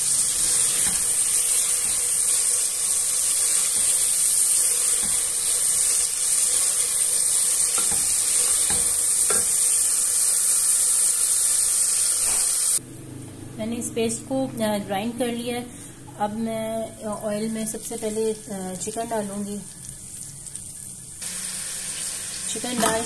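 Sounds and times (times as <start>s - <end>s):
vegetables sizzling in hot oil: 0.0s - 12.8s, 17.7s - 23.0s.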